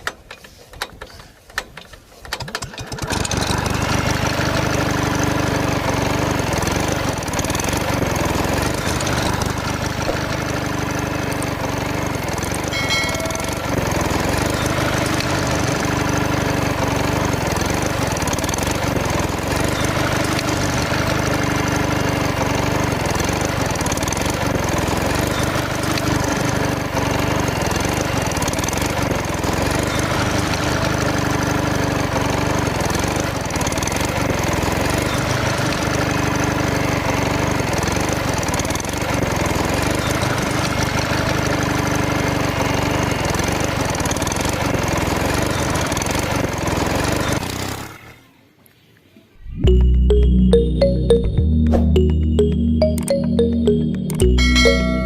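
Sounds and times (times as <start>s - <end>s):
high chirp: 49.4s - 55.0s.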